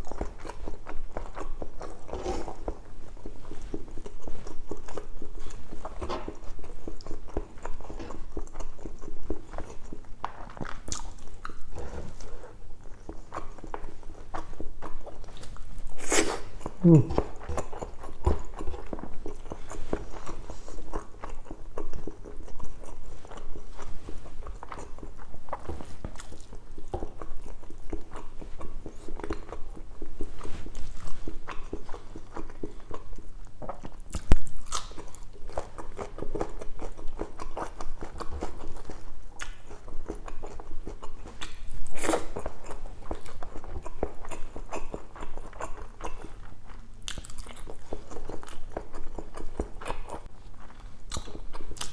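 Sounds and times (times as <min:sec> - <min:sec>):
person chewing and biting: 0:24.3 - 0:51.9.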